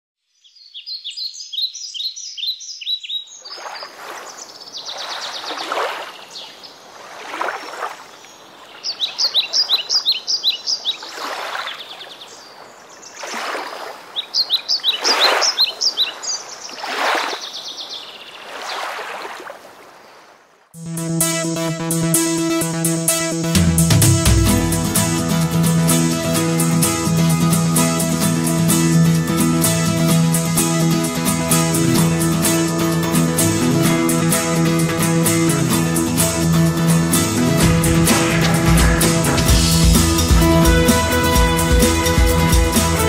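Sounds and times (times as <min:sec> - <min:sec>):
songbird chirping in trills: 0:00.2 - 0:06.9, 0:08.1 - 0:18.9
rhythmic swishing: 0:20.8 - 0:43.0.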